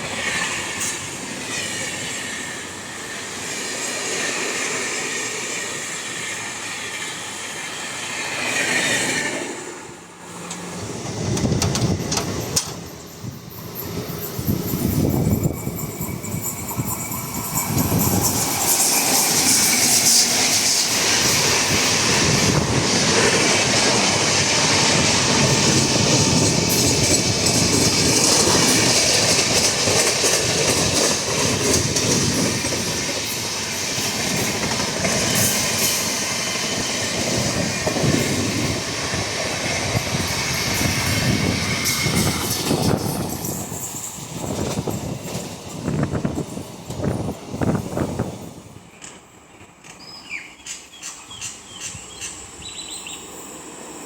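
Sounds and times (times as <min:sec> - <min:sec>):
train wheels rumbling over rails: 0:00.0 - 0:54.0
wheels squealing: 0:10.4 - 0:22.6.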